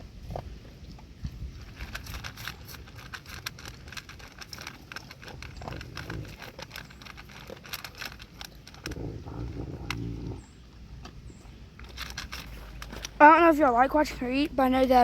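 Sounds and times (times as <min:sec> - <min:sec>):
dog crunching food: 0:01.5 - 0:10.4, 0:11.0 - 0:14.1.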